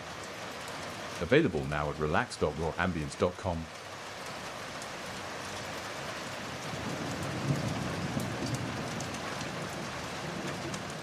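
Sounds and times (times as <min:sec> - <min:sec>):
raindrops ticking: 0:00.0 - 0:11.0
steady rain: 0:00.0 - 0:11.0
distant thunder rumble: 0:05.7 - 0:11.0.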